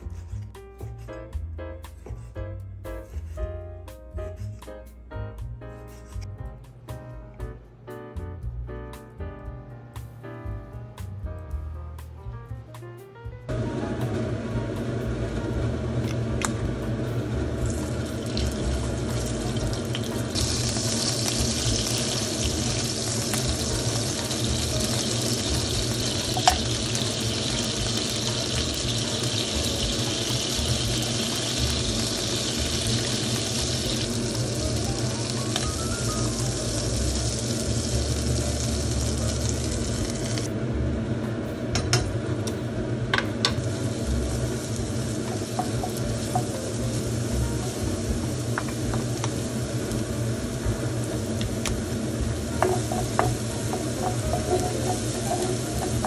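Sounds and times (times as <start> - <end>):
food sizzling in a frying pan: 13.5 - 40.5, 43.4 - 56.0.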